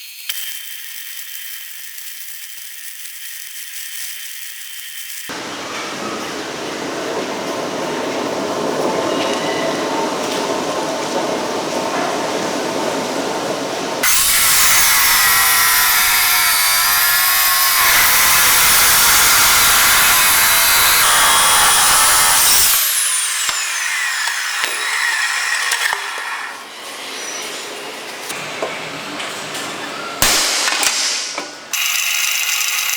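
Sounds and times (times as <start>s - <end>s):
power tool whining: 14.0s - 26.7s, 31.7s - 32.9s.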